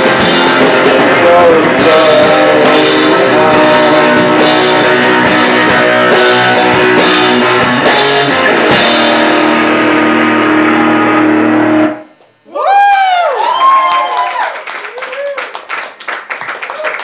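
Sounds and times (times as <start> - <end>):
drum and cymbal hits: 0.0 - 10.4
live rock band playing: 0.0 - 12.2.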